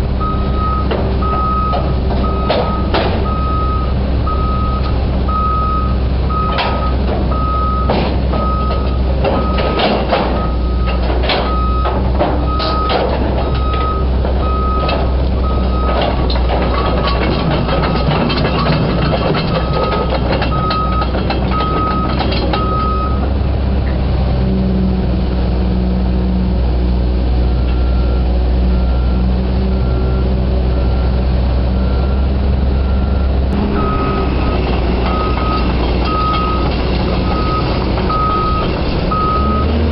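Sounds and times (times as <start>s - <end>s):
excavator diesel engine running: 0.0s - 39.9s
travel alarm beeping: 0.2s - 9.8s, 10.4s - 11.9s, 12.5s - 16.2s, 19.6s - 23.2s, 31.8s - 39.7s
sharp metal clanks and knocks: 0.9s - 3.3s, 6.5s - 15.1s, 15.8s - 23.0s
higher faint beep: 32.8s - 36.6s.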